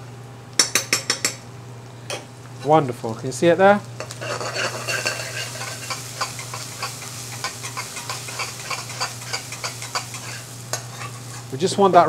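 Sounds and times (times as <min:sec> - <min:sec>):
onions sizzling in hot oil: 0:02.3 - 0:12.0
metal spoon scraping a pan: 0:04.0 - 0:11.6.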